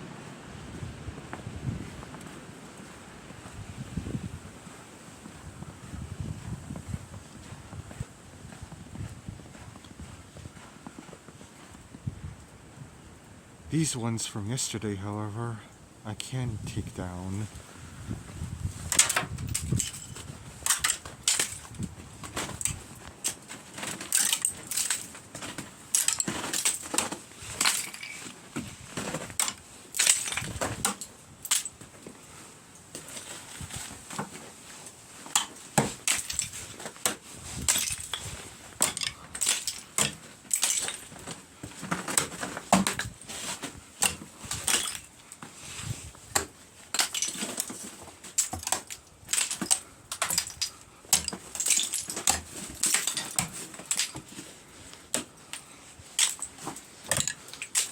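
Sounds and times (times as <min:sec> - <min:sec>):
icicles cracking and shattering: 0:18.7 - 0:33.4, 0:35.2 - 0:45.4, 0:46.3 - 0:54.4, 0:55.0 - 0:57.9.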